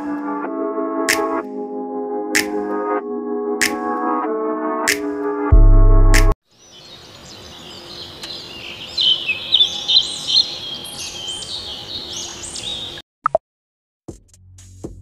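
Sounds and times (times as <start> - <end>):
heavy bass music note: 5.5 - 6.4
birds chirping and twittering: 6.5 - 13.0.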